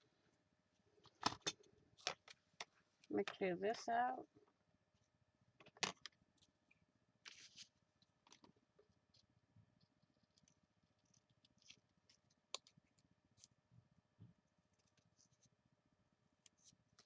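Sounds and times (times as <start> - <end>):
paper rustling: 7.2 - 8.5.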